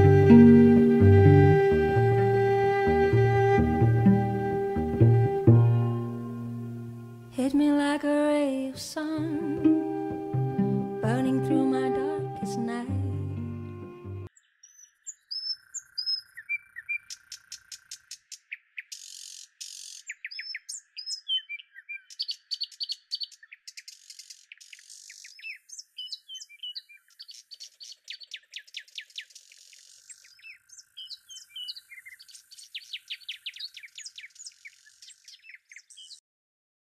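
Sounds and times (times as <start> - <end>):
small birds chirping and trilling: 14.3 - 36.2.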